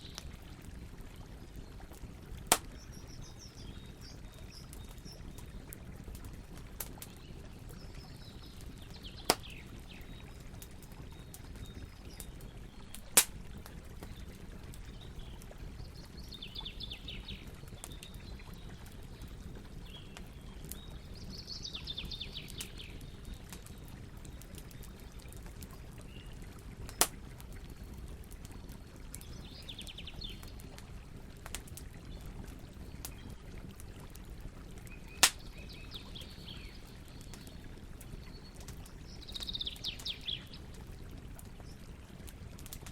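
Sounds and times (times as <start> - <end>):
campfire crackling: 0.0 - 42.9
loud fire pops: 2.5 - 2.9, 12.9 - 13.4, 26.9 - 27.2, 35.2 - 35.4
songbird singing: 2.6 - 5.7, 7.1 - 10.4, 14.0 - 24.9, 28.6 - 30.5, 34.9 - 40.7.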